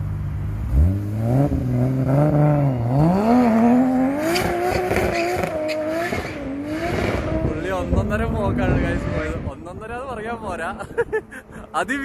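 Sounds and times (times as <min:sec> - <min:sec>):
car engine revving and accelerating: 0:00.4 - 0:09.7.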